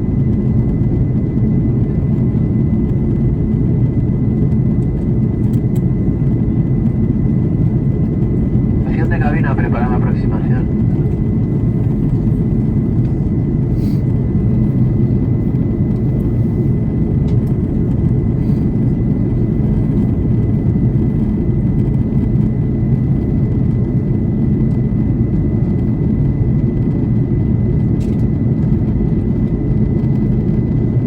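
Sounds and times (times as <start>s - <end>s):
airliner cabin engine rush: 0.0s - 31.0s
faint high whine: 8.8s - 13.4s.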